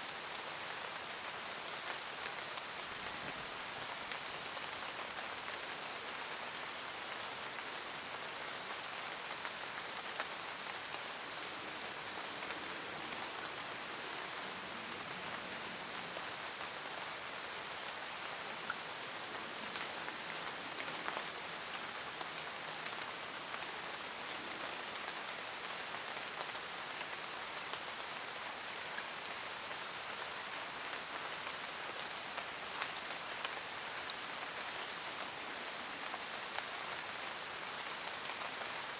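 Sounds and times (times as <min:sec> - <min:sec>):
rain hissing in forest: 0:00.0 - 0:38.9
raindrops ticking on leaves: 0:00.0 - 0:38.9.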